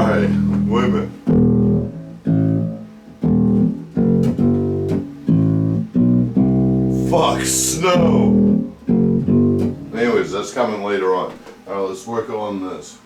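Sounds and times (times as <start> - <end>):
electric bass plucked notes: 0.0 - 10.3.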